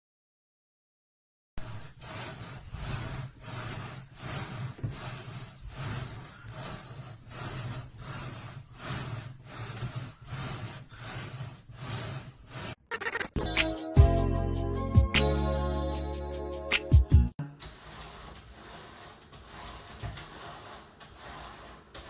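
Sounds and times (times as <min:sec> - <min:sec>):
exercise machine rubbing strokes: 0:01.6 - 0:22.0
music: 0:13.0 - 0:17.5.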